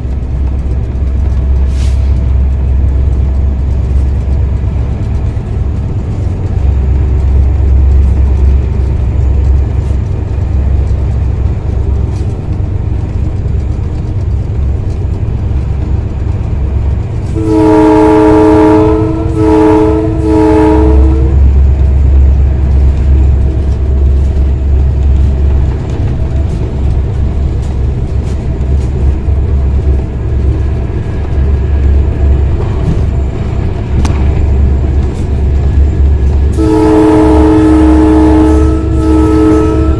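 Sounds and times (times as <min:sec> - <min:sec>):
locomotive rumbling: 0:00.0 - 0:39.9
locomotive horn blasts: 0:17.3 - 0:21.5, 0:36.5 - 0:39.9.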